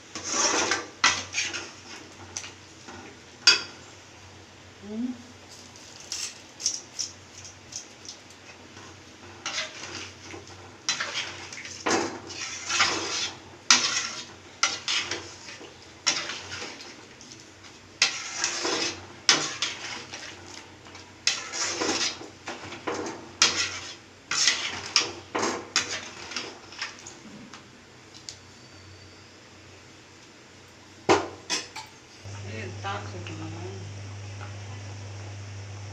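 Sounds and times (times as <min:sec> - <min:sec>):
metal utensil scraping a pot: 0:00.1 - 0:02.0, 0:09.4 - 0:16.9, 0:18.0 - 0:27.0.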